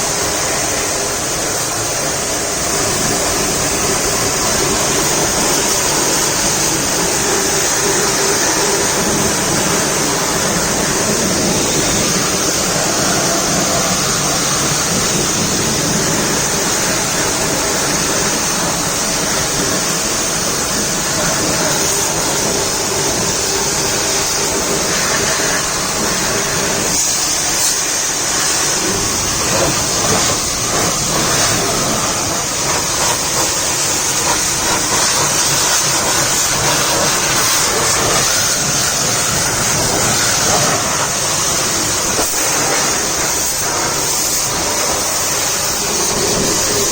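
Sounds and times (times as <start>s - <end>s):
water jet spraying against truck: 0.0s - 46.9s.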